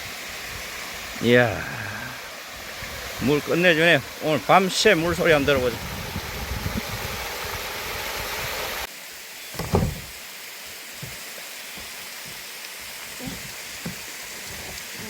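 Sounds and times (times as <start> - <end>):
stream water rushing: 0.0 - 15.0
loud thump: 9.6 - 10.1.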